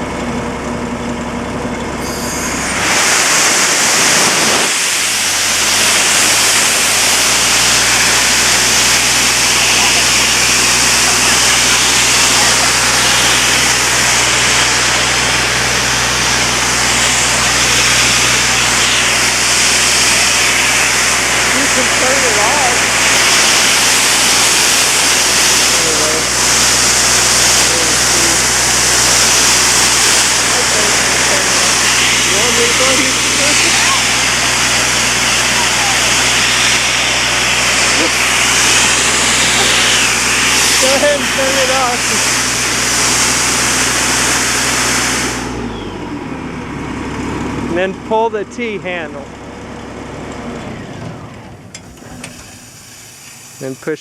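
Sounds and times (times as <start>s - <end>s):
diesel air compressor running: 0.0s - 54.0s
compressed air rushing: 2.0s - 45.7s, 50.5s - 54.0s.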